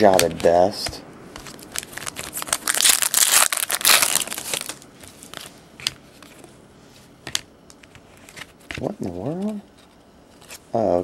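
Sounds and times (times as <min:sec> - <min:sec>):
wrapper tearing and crinkling: 0:01.5 - 0:05.5.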